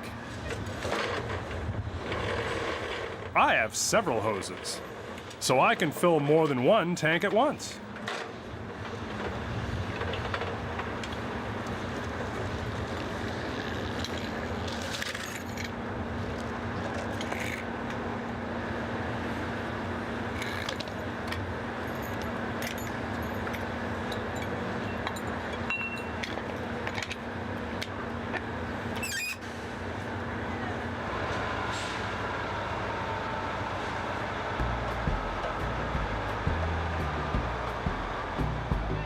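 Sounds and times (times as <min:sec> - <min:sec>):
truck stop background noise: 0:00.0 - 0:39.0.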